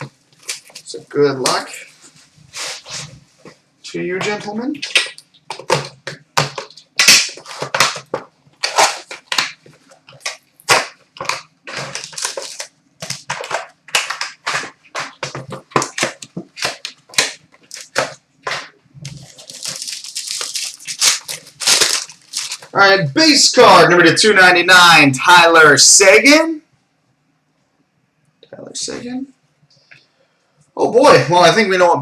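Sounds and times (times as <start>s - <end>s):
cardboard and wrapper tearing: 6.6s - 22.8s.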